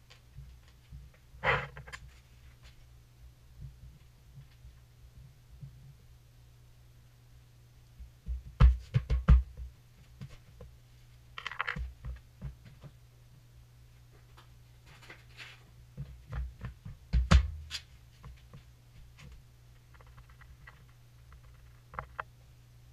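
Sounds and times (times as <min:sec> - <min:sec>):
low steady hum: 0:00.0 - 0:22.9
thumps on plywood floor: 0:08.3 - 0:09.7, 0:16.0 - 0:17.7.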